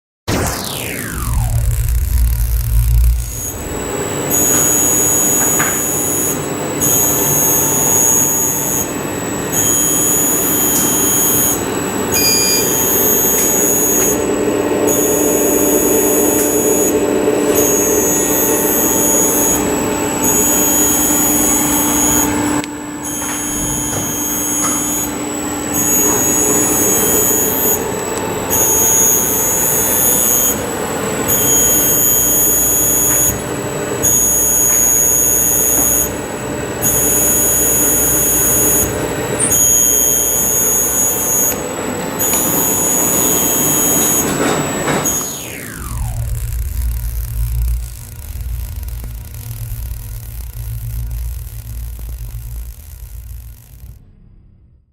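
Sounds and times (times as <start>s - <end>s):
high-pitched motor whine: 0.3s - 54.7s
servo motor running noise: 45.0s - 54.0s.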